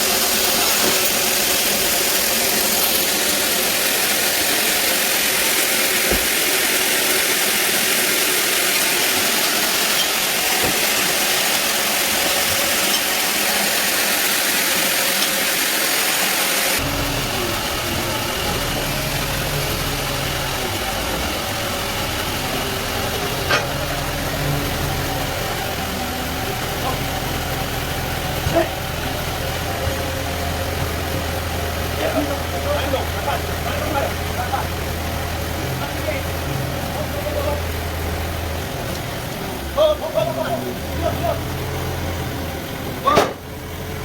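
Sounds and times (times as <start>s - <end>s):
bandsaw cutting wood: 0.0s - 39.5s
engine-like rumble: 16.8s - 44.0s.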